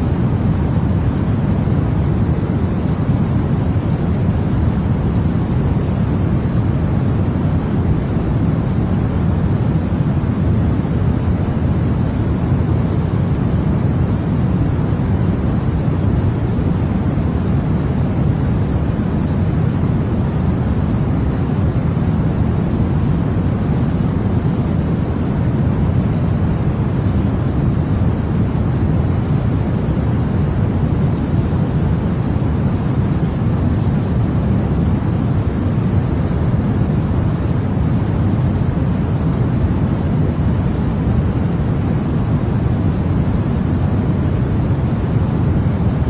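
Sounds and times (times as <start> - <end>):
deep white noise: 0.0 - 46.0.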